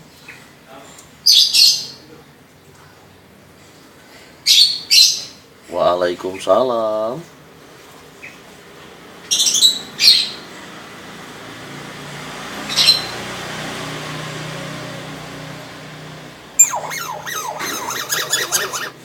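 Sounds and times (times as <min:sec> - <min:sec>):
bird squawking: 0:16.6 - 0:19.0.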